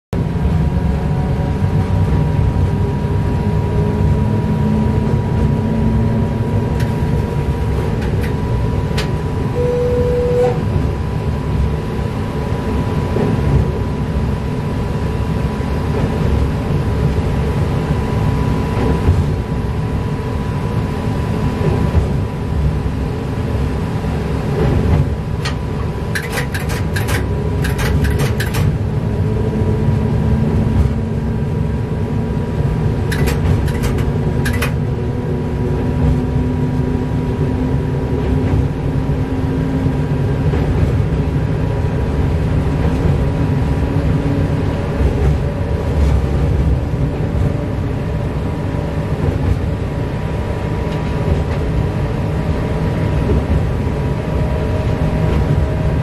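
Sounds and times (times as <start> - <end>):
train rumbling on track: 0.1 - 56.0.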